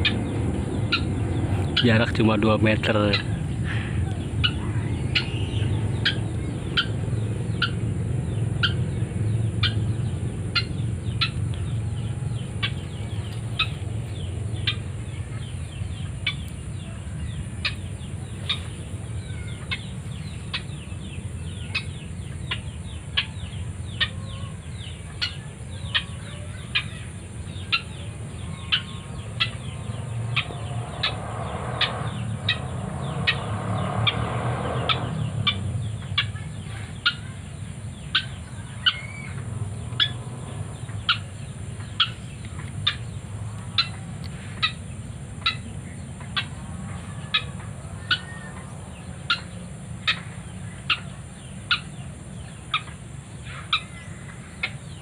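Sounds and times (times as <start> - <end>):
low rumble: 0.0 - 24.0
waterhen calling: 36.2 - 55.0.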